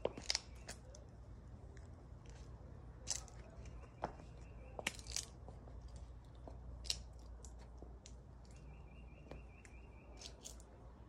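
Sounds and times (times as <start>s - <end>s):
small birds chirping: 0.0s - 1.2s.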